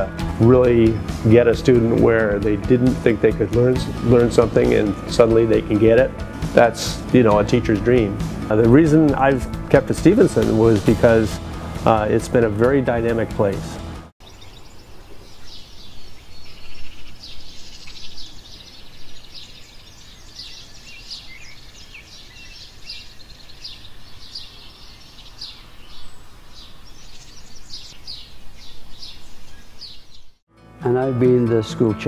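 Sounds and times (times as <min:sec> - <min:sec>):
birds chirping: 0:00.0 - 0:30.4
outdoor background noise: 0:14.2 - 0:30.4.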